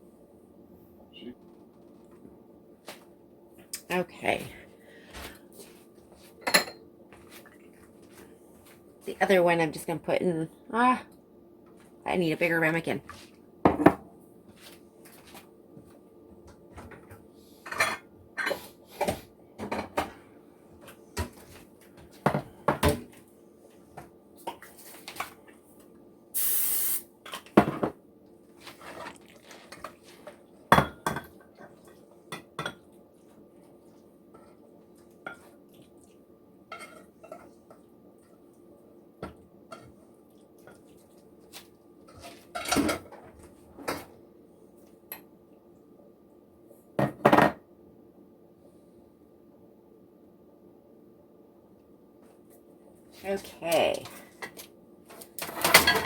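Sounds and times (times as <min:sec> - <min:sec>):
faint steady hum: 0:00.0 - 0:56.0
brief hiss: 0:26.4 - 0:27.1.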